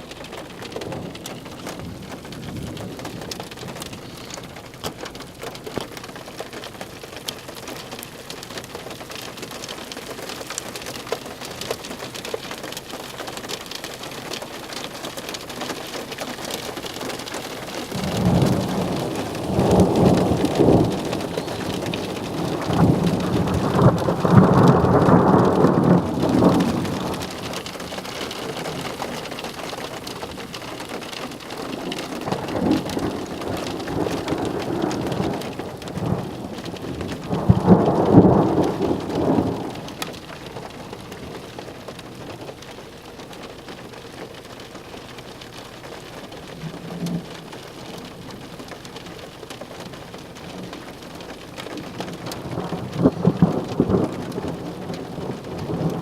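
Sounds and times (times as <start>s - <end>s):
thunder rumbling: 0.0s - 6.2s, 15.8s - 42.6s, 46.3s - 56.0s
steady rain: 0.0s - 56.0s.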